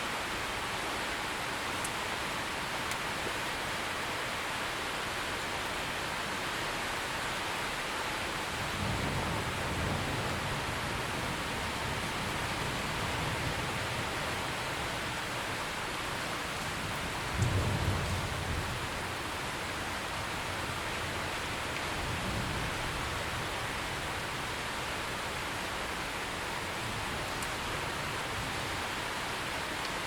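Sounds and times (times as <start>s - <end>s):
steady rain falling: 0.0s - 30.0s
distant thunder rumble: 8.7s - 15.1s, 16.6s - 19.2s.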